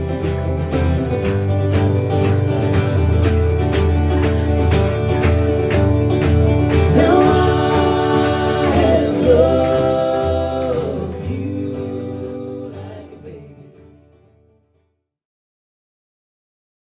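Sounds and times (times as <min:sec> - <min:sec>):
strummed acoustic guitar: 0:00.0 - 0:14.9
vocal harmony singing: 0:06.8 - 0:14.2.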